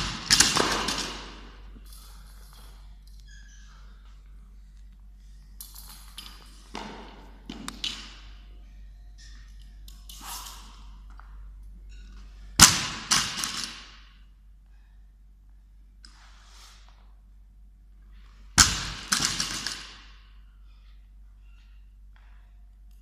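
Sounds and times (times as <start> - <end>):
gym equipment thuds and clatter: 0.0 - 1.6, 18.6 - 20.2.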